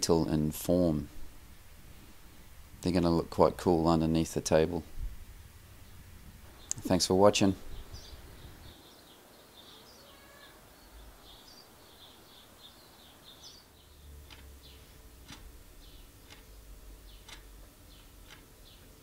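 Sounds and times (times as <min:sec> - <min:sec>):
low background rumble: 0:00.2 - 0:08.8, 0:13.7 - 0:19.0
faint birds chirping: 0:05.6 - 0:19.0.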